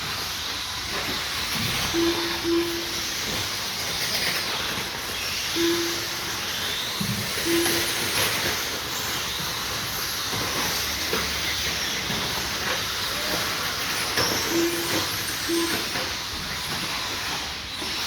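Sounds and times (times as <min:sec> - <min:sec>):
rc truck motors whining: 0:00.0 - 0:18.0
short low beeps: 0:01.9 - 0:03.4, 0:05.6 - 0:06.4, 0:07.4 - 0:08.3, 0:14.5 - 0:16.2.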